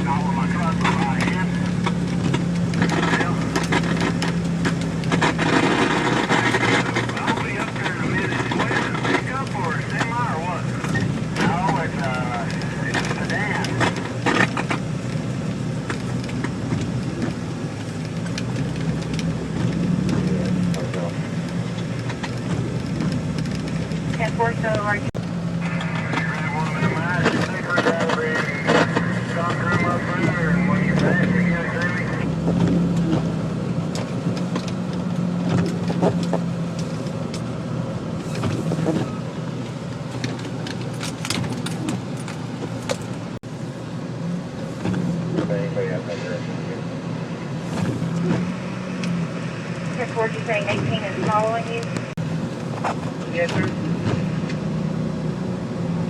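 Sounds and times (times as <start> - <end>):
car engine and road noise: 0.0 - 56.0
short rattles and clicks: 39.6 - 43.4.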